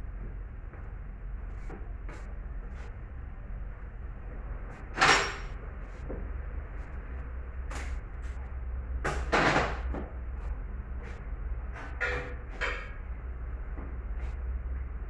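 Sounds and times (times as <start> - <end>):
steady low hum: 0.0 - 15.0
metal tools clanking: 5.0 - 5.6, 11.8 - 13.0.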